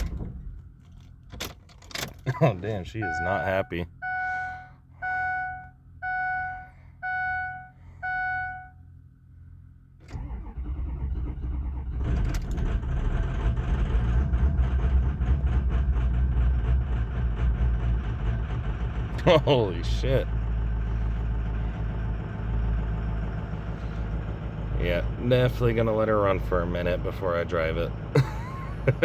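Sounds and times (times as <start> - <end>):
diesel engine starting and idling: 0.0 - 29.0
truck warning chime beeping: 3.0 - 8.9.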